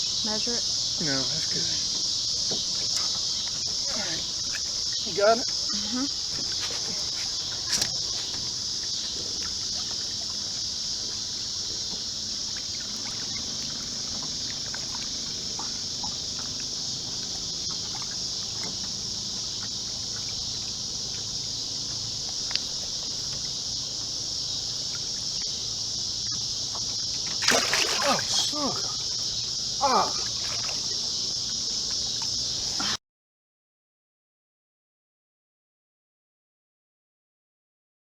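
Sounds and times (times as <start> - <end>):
insect chorus: 0.0 - 33.0
faint small ticks: 12.5 - 23.8.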